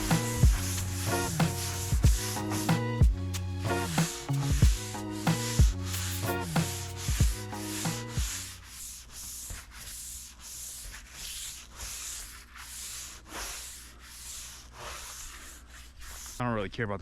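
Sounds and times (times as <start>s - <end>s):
brush scrubbing car bodywork: 0.0s - 2.9s, 3.9s - 16.5s
pitched hum: 0.0s - 8.4s.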